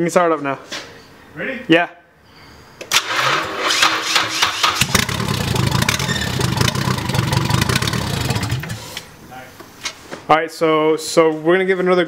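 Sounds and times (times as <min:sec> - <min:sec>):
engine starter cranking: 0:02.9 - 0:09.1
engine running roughly: 0:04.7 - 0:09.0.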